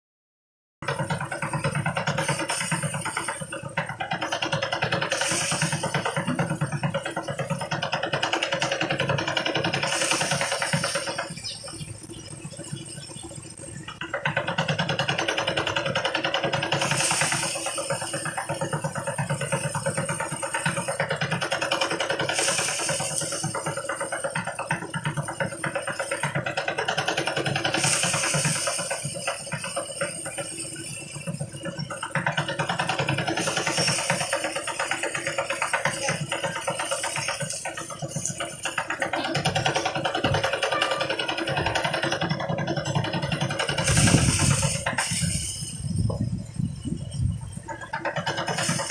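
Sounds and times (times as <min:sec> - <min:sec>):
harvest thresher running: 0:00.8 - 0:48.9.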